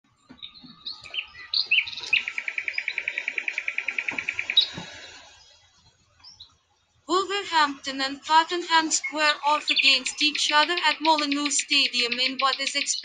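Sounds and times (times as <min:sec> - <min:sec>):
bird chirping and trilling: 0:00.2 - 0:05.6, 0:08.8 - 0:13.0.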